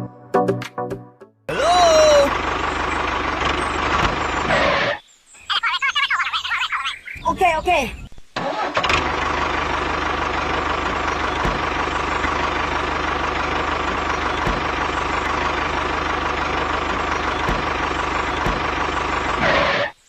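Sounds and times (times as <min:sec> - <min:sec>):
small engine running steadily: 0:01.6 - 0:05.0, 0:08.8 - 0:19.9.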